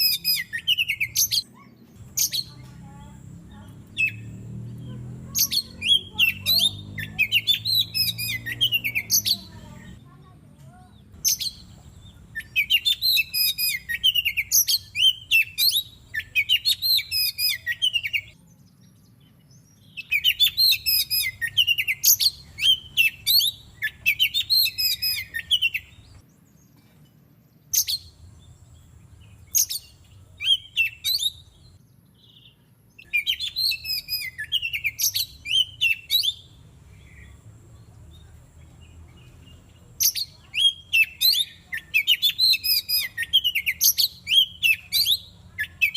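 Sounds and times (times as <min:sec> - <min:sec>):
bird singing whistled phrases: 0:00.0 - 0:02.6, 0:05.3 - 0:09.6, 0:11.2 - 0:18.4, 0:19.6 - 0:26.2, 0:29.5 - 0:37.4, 0:40.0 - 0:45.9.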